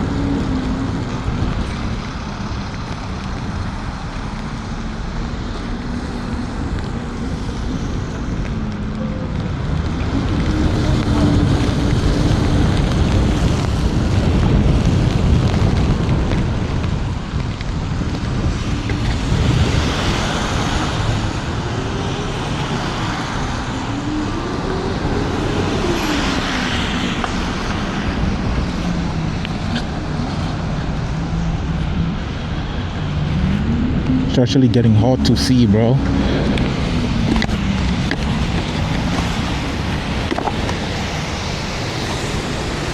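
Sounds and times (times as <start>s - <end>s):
tyres hissing on wet road: 0.0s - 33.8s, 34.9s - 42.9s
wind buffeting microphone: 0.0s - 42.9s.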